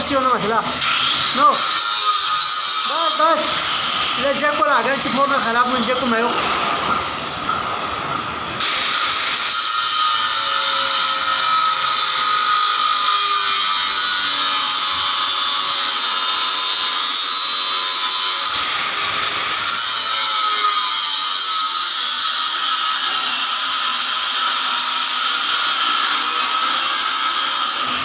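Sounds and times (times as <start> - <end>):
power tool whining and grinding: 8.6 - 28.0.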